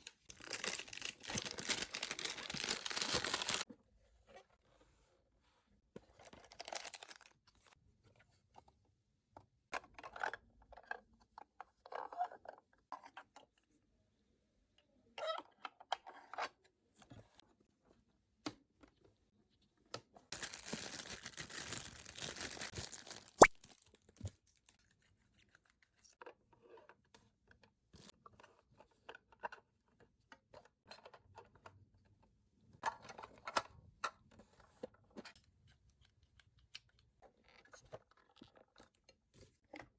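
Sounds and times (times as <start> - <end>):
packaging tearing and rustling: 0.0 - 3.6, 6.4 - 7.3, 20.3 - 23.9.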